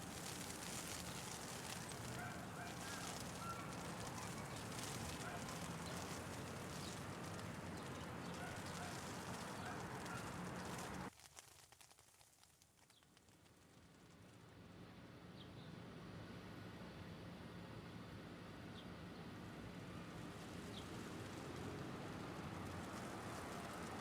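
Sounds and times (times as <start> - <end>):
hail and traffic hiss: 0.0 - 12.7, 19.6 - 24.0.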